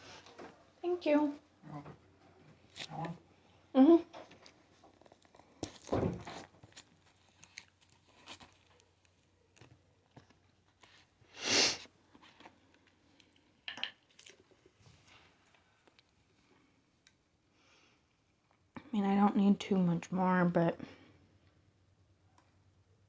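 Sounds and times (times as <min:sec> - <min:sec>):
chewing and crunching: 0:04.2 - 0:11.2, 0:12.0 - 0:14.8.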